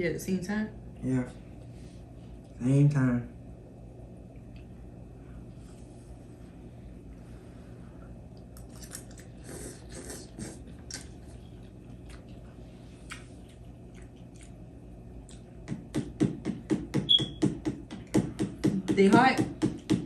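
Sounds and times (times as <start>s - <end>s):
chewing mouth smacks: 8.3s - 15.8s.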